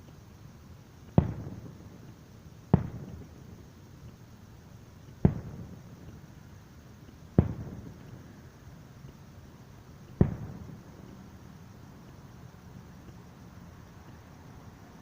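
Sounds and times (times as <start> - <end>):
firework shells booming: 7.3 - 8.2, 10.1 - 11.2.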